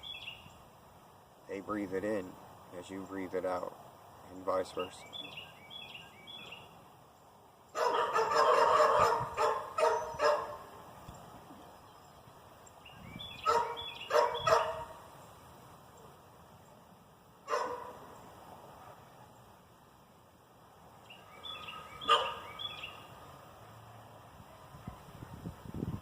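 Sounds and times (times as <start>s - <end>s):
dog barking: 7.8s - 10.6s, 13.4s - 15.0s, 17.5s - 18.0s, 22.0s - 22.5s.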